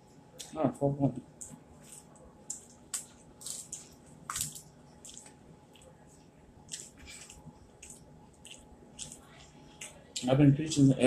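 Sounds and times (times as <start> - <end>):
chewing with wet mouth smacks: 1.4 - 6.0, 6.6 - 10.3.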